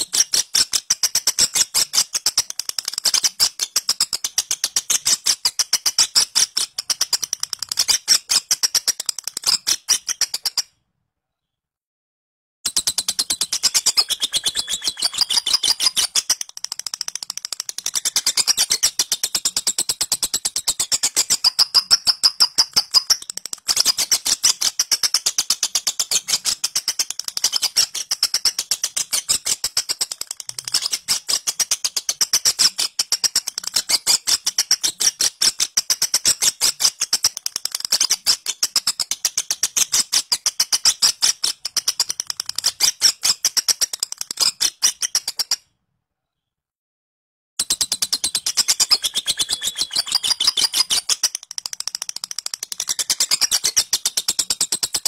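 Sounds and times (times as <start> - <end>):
lovebird shrill chattering: 13.0 - 16.4, 20.7 - 23.2, 47.6 - 51.4.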